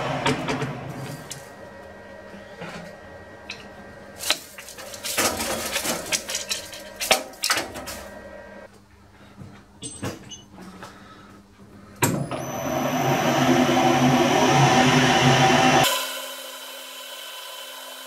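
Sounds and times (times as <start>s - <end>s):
faint machine hum: 0.0s - 15.8s
metal tools clanking: 3.5s - 8.0s.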